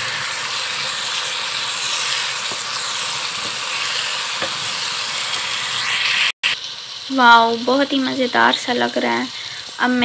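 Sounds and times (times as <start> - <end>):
chicken sizzling in hot oil: 0.0 - 10.0
spatula tapping pan: 2.4 - 2.8, 3.4 - 3.7, 4.4 - 4.7.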